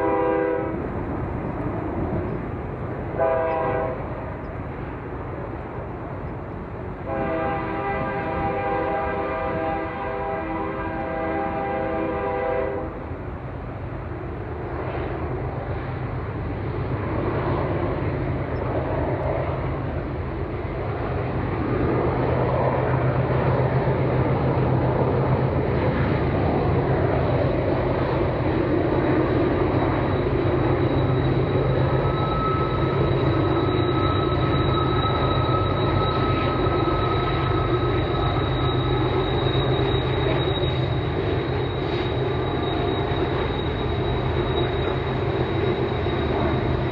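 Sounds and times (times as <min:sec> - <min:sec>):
train rumbling past: 0:00.0 - 0:46.9
high squeal: 0:23.8 - 0:46.9.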